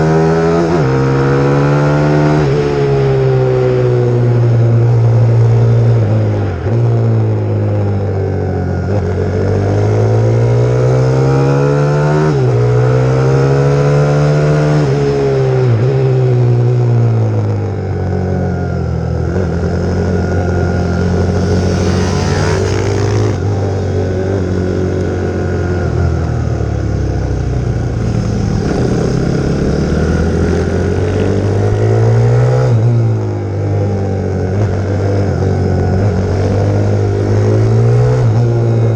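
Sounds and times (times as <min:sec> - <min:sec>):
motorbike engine revving: 0:18.4 - 0:38.9.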